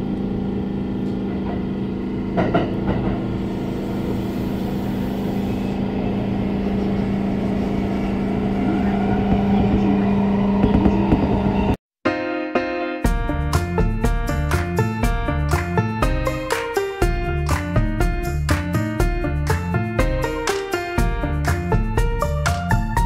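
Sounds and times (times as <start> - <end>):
train motor hum: 0.0 - 11.8
train wheels rumbling on track: 1.0 - 11.8.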